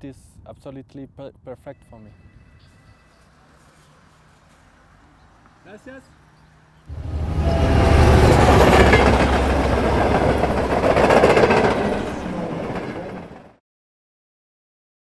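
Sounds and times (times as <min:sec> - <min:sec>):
train wheels rumbling on rails: 0:06.9 - 0:13.6.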